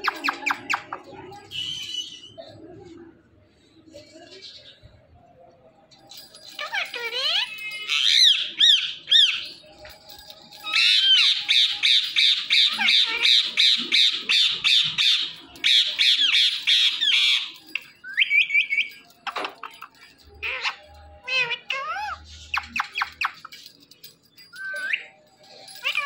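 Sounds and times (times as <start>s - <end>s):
parakeet squawking and screeching: 6.6s - 9.5s, 10.6s - 19.0s, 20.3s - 23.4s, 25.8s - 26.0s.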